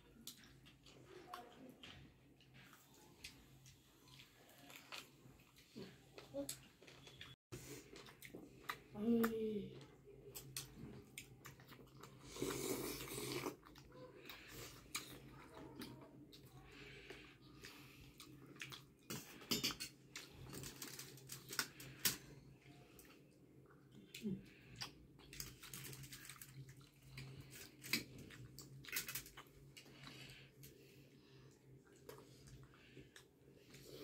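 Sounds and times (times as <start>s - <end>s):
chewing: 0.0s - 9.0s, 9.8s - 34.0s
utensils clinking on dishes: 19.1s - 20.7s.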